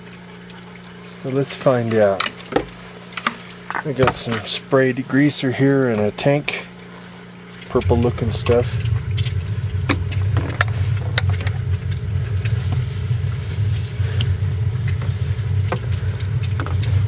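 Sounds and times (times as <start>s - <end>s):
motor humming: 6.2s - 17.0s.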